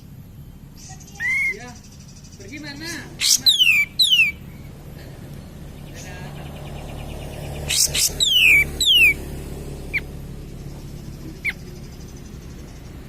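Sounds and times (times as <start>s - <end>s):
bird singing whistles: 3.2s - 4.4s, 7.6s - 9.2s.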